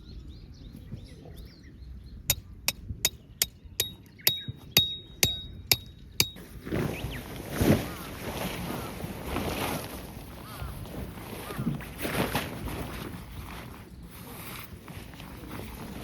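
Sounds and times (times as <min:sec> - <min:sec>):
birds chirping: 0:00.0 - 0:08.1
hammer striking metal peg: 0:02.3 - 0:06.4
rustling wind-like noise: 0:06.3 - 0:16.0.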